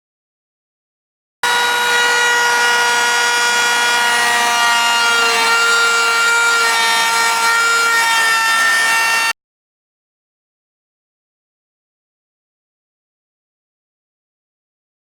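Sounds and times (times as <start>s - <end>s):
power saw cutting wood: 1.4s - 9.4s.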